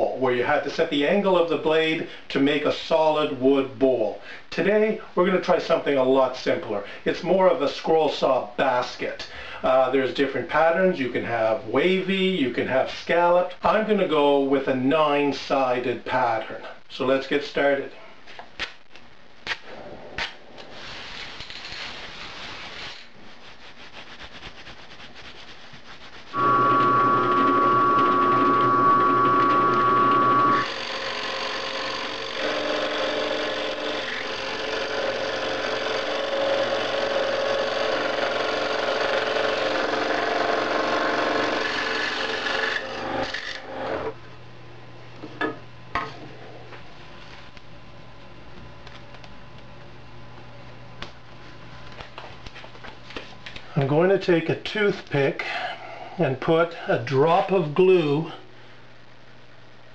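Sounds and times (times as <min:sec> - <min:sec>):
saw cutting wood: 0:26.3 - 0:44.1
power saw whining: 0:26.4 - 0:44.1.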